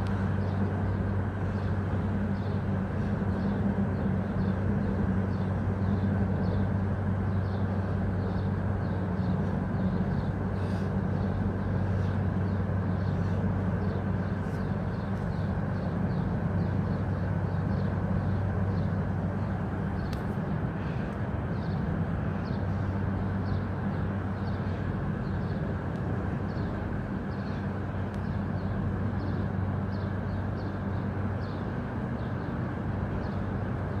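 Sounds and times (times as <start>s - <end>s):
small birds chirping: 0.0s - 33.6s
low jet rumble: 0.0s - 34.0s.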